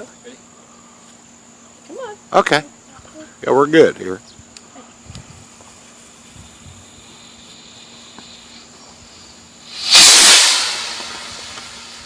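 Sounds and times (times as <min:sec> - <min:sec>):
rocket motor hissing: 0:06.1 - 0:12.0.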